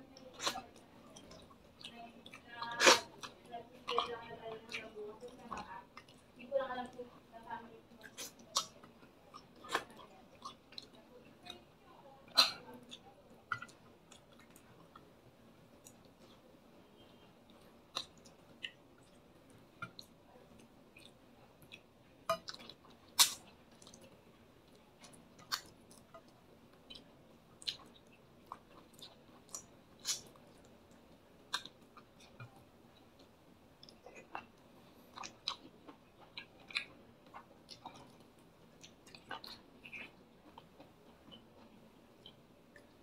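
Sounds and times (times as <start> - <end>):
wet mouth clicks: 21.0 - 24.0
man chewing: 21.0 - 32.6, 33.2 - 43.0.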